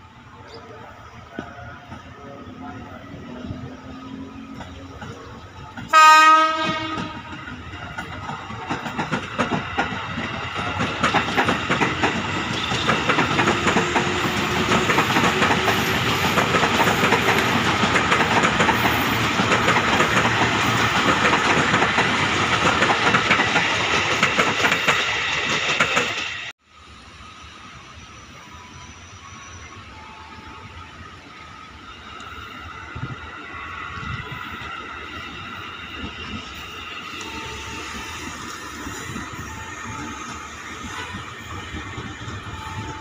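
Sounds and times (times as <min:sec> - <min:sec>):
train wheels clattering: 0:04.2 - 0:26.5
train horn blast: 0:05.8 - 0:07.5, 0:37.1 - 0:41.6.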